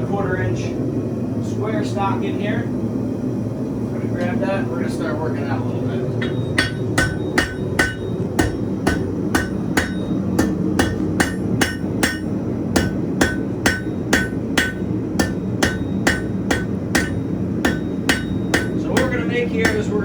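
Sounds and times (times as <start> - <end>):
gas forge rushing: 3.8 - 20.0
hammer striking steel on anvil: 6.2 - 20.0.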